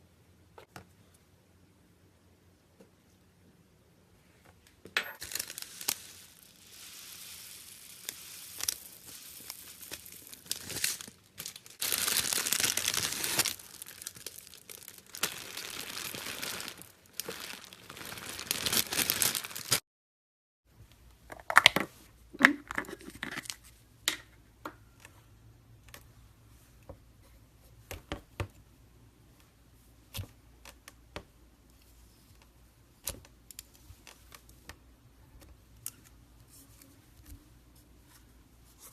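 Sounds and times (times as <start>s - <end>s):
slime crackling and crunching: 5.2s - 19.8s.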